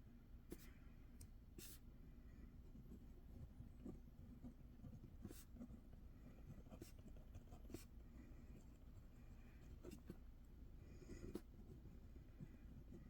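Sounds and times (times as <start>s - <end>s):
pen scratching on paper: 3.6s - 7.9s.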